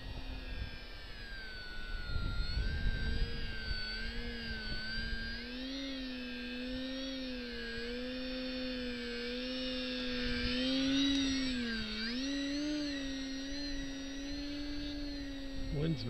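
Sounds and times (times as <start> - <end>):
wind rumble on microphone: 0.0 - 5.5
model plane motor whining: 0.0 - 16.0.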